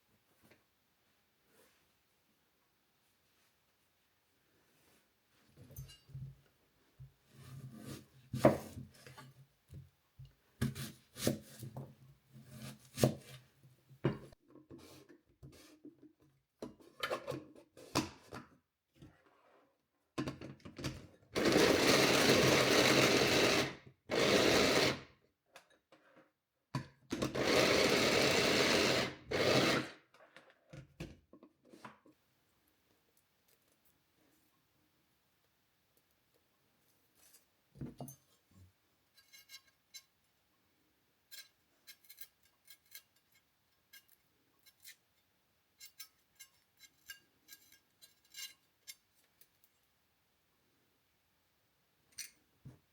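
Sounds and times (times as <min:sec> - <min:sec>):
electric blender running: 0:21.4 - 0:25.0, 0:27.4 - 0:30.0.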